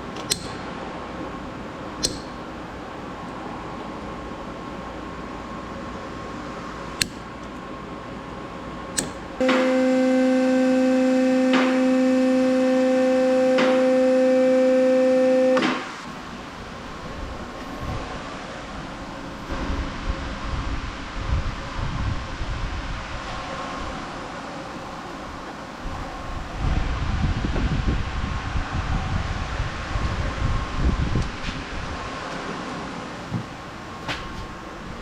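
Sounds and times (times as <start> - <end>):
sharp clicks: 2.0 - 2.3
steady even-pitched tone: 9.4 - 15.8.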